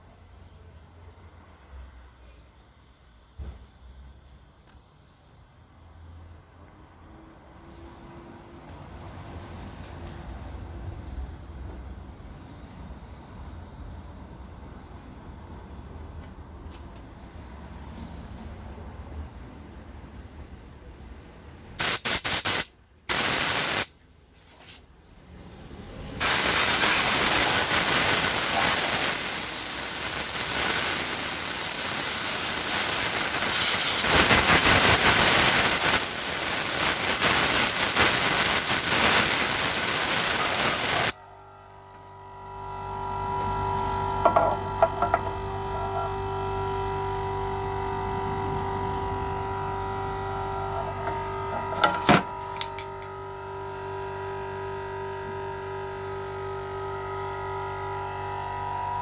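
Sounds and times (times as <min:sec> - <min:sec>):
air compressor humming: 0:21.4 - 0:24.0, 0:26.2 - 0:59.0
compressed air hissing: 0:21.8 - 0:24.0, 0:26.2 - 0:41.2.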